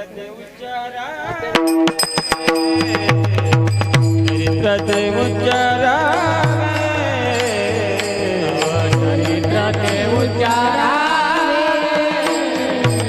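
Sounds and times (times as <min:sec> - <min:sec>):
percussion strokes: 0:01.5 - 0:13.0
person singing ornamented melody: 0:02.7 - 0:13.0
steady drone: 0:02.9 - 0:13.0.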